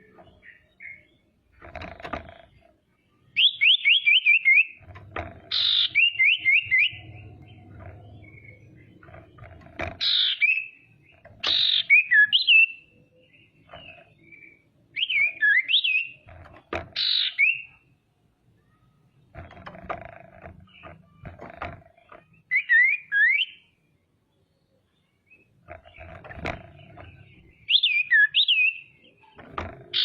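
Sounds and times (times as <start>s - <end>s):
bird harsh raspy calls: 5.5s - 7.0s.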